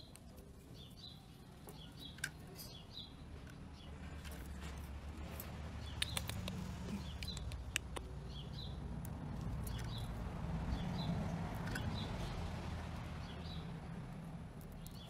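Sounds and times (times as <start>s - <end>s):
small bird chirping: 5.4s - 12.5s, 14.6s - 15.0s
sharp clicks: 5.8s - 8.3s.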